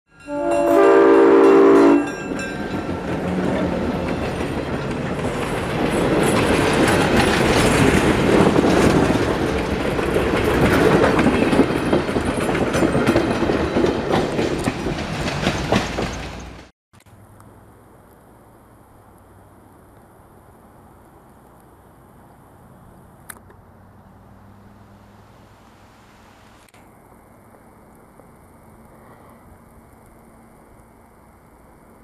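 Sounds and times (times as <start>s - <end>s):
train running past: 0.1s - 16.7s
train horn chord: 0.2s - 3.0s
wheels clattering over rail joints: 2.1s - 16.7s.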